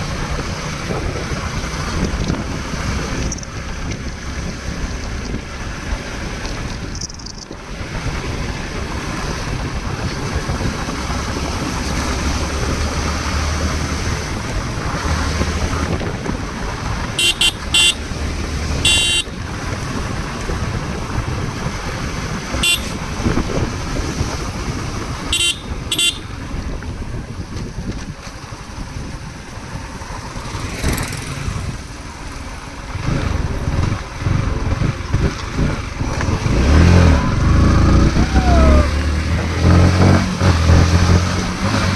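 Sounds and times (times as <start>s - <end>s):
motor vehicle rumble: 0.0s - 41.9s
short high horn beeps: 17.2s - 18.0s, 18.9s - 19.3s, 22.6s - 23.0s.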